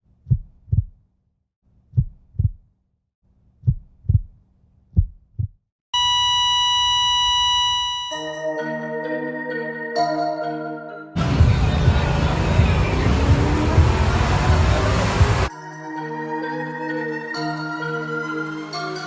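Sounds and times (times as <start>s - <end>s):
heartbeat double thumps: 0.2s - 1.0s, 1.9s - 2.7s, 3.6s - 5.6s, 11.2s - 15.5s
long steady beep: 6.0s - 8.4s
music: 8.2s - 19.0s.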